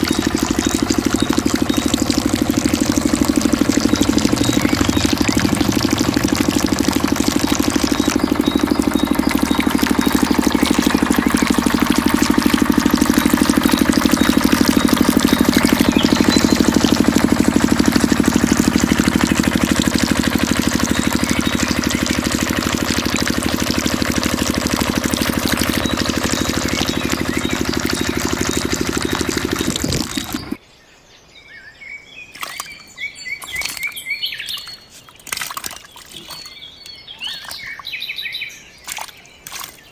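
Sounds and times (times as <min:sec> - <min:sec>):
diesel engine driving water pump: 0:00.0 - 0:30.6
birds chirping: 0:00.0 - 0:39.9.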